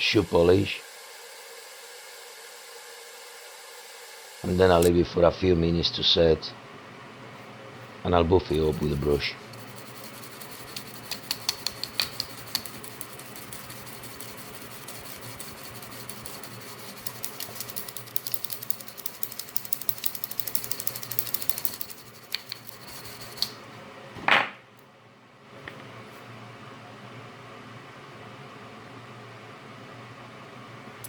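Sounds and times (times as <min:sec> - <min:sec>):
brush buffing light clicks: 0:10.3 - 0:14.2, 0:16.0 - 0:23.5.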